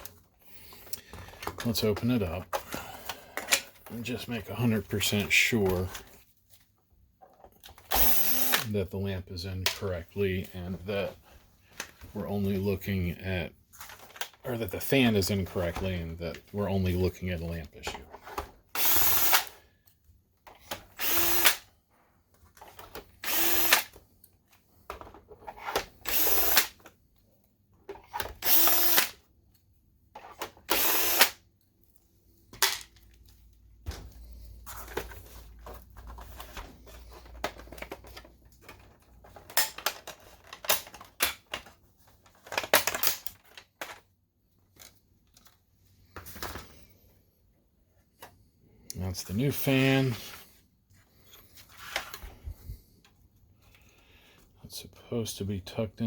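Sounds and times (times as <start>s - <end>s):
power screwdriver whirring: 7.9s - 8.7s, 18.7s - 19.5s, 21.0s - 21.6s, 23.2s - 23.9s, 26.0s - 26.8s, 28.4s - 29.2s, 30.7s - 31.4s.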